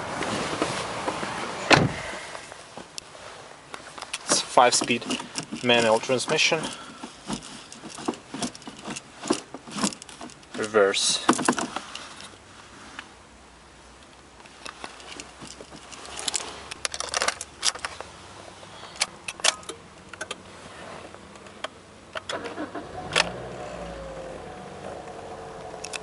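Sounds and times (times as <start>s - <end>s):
car keys jangling: 4.1s - 12.4s, 14.5s - 18.0s, 25.7s - 26.0s
car engine starting and idling: 21.4s - 26.0s.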